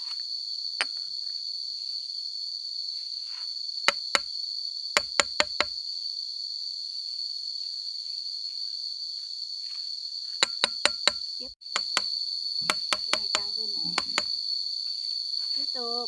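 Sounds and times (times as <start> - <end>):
insects droning: 0.0 - 16.0
sharp knocks: 5.0 - 5.7, 10.4 - 14.3.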